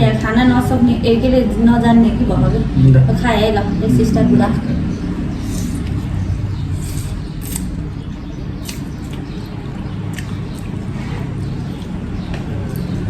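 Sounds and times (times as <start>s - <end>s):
steady low hum: 0.0s - 13.0s
wet eating sounds: 8.6s - 13.0s.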